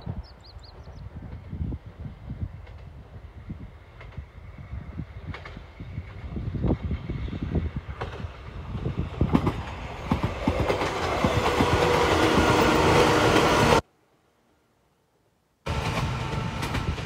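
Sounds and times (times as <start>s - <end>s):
electric train passing: 0.7s - 13.9s, 15.7s - 17.0s
wheels clacking over rail joints: 5.2s - 13.8s, 15.7s - 17.0s.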